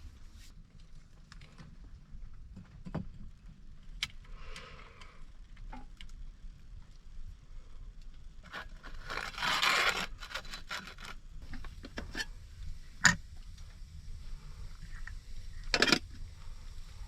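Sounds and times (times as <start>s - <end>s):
rustling scrape: 8.4s - 12.4s.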